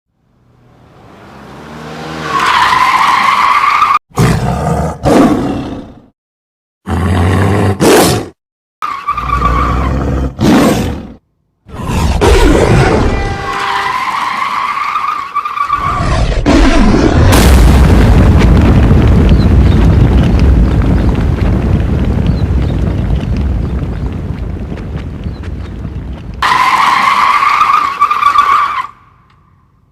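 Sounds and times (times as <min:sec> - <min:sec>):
vehicle engine: 0:00.1 - 0:03.5
tyres skidding with squeal: 0:00.6 - 0:04.0, 0:08.8 - 0:10.0, 0:13.0 - 0:16.4, 0:26.4 - 0:29.3.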